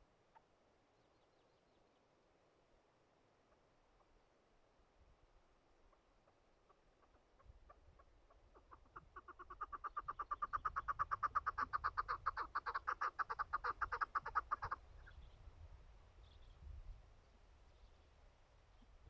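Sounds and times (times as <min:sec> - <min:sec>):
partridge clucking calls: 0:05.9 - 0:15.2.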